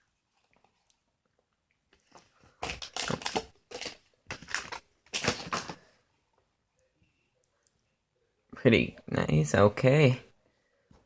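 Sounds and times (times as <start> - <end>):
foil packaging crinkling: 2.6 - 5.8.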